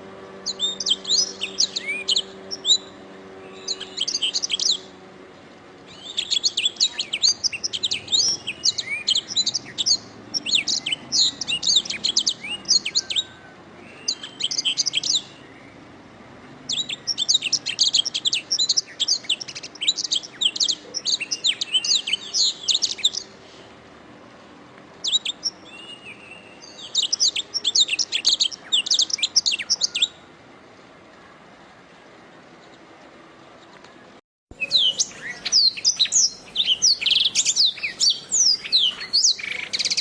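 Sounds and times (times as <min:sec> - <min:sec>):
canary singing trills and chirps: 0:00.3 - 0:05.0, 0:05.9 - 0:15.8, 0:16.7 - 0:23.4, 0:25.0 - 0:30.2, 0:34.5 - 0:40.0.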